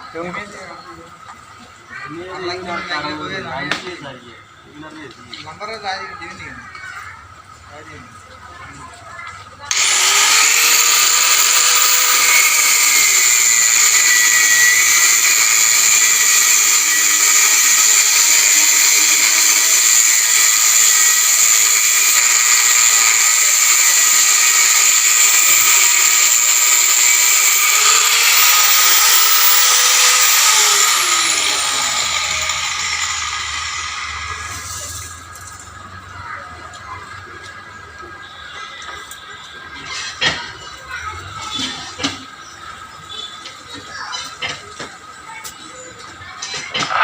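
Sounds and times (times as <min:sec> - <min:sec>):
electric cutter whining on rebar: 0:09.7 - 0:35.7, 0:46.8 - 0:47.0.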